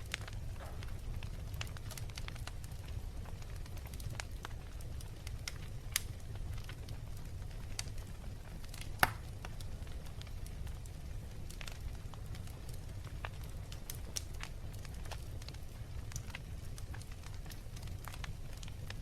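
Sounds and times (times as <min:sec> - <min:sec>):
low fire rumble: 0:00.0 - 0:19.0
wood fire crackling: 0:00.0 - 0:19.0
loud fire pop: 0:00.5 - 0:01.0, 0:09.0 - 0:09.2.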